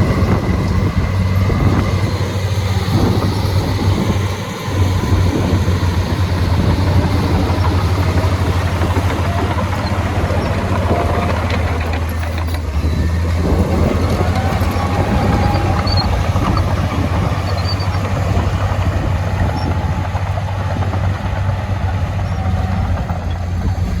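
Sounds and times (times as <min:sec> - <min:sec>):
heavy diesel engine drone: 0:00.0 - 0:24.0
faint high squeals: 0:06.7 - 0:20.0.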